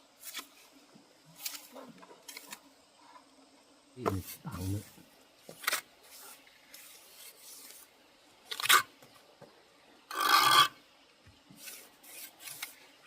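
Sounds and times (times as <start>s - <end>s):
rough scraping strokes: 4.1s - 7.9s, 10.1s - 10.8s, 11.6s - 12.9s.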